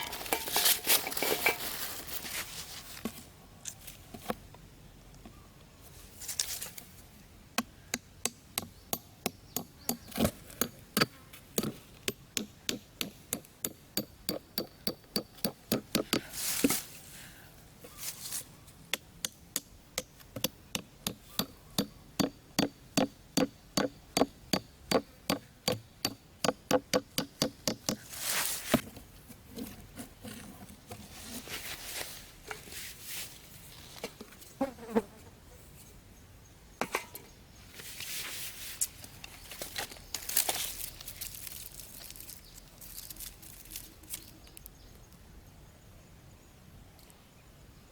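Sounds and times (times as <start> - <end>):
short rustling: 0.0 - 3.2, 28.0 - 28.9
hand tool knocking wood: 20.4 - 28.0.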